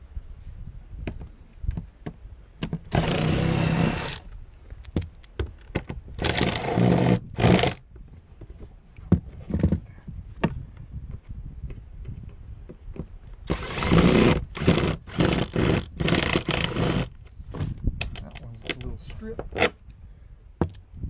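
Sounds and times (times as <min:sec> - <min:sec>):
power drill running: 0:02.9 - 0:04.2, 0:13.5 - 0:17.1
handling clicks and knocks: 0:18.0 - 0:19.8.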